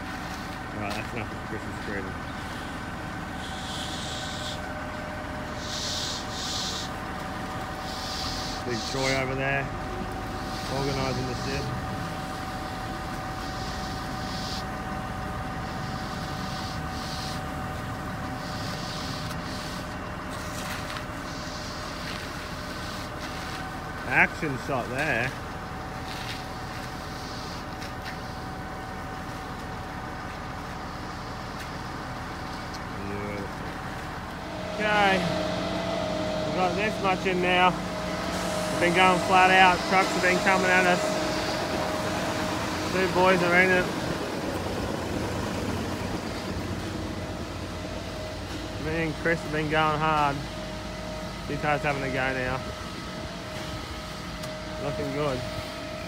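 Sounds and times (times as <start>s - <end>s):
engine drone: 0.0s - 56.0s.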